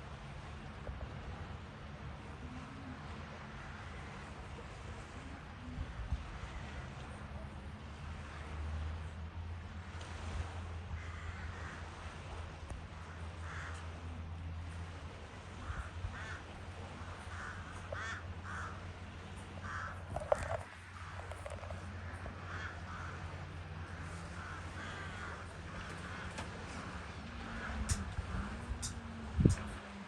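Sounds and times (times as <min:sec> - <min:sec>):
steady low hum: 0:00.0 - 0:30.0
crows cawing: 0:11.0 - 0:11.9, 0:13.4 - 0:13.9, 0:15.6 - 0:16.5, 0:17.2 - 0:18.8, 0:19.6 - 0:29.0.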